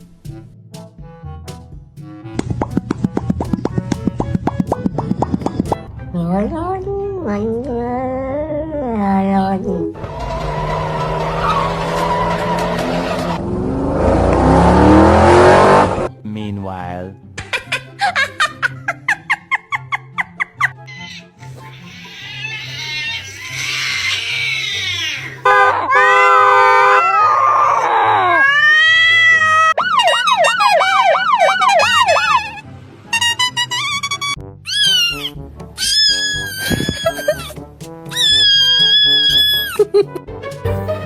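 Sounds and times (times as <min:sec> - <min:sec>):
car engine revving: 0:10.0 - 0:16.1
siren-like wail and warble: 0:26.8 - 0:32.6.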